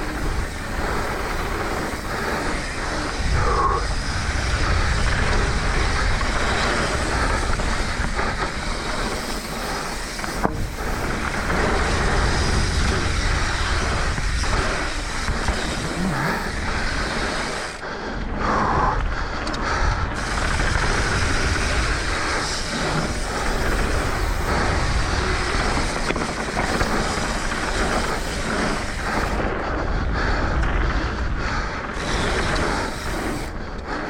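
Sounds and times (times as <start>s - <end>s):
bike rattling over bumps: 0.0s - 17.8s, 19.6s - 34.0s
wind on microphone: 0.0s - 17.8s
bike tyres rolling on dirt: 0.0s - 34.0s.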